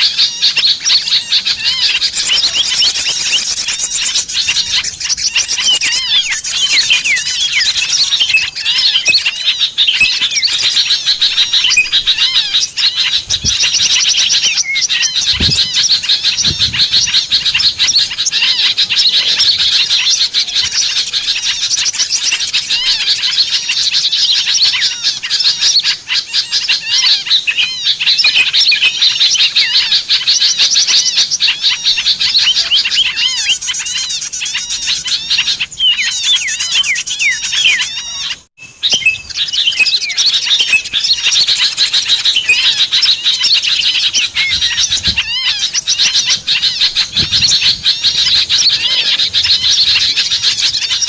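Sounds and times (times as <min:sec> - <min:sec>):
small birds chirping and trilling: 0:00.0 - 0:51.0.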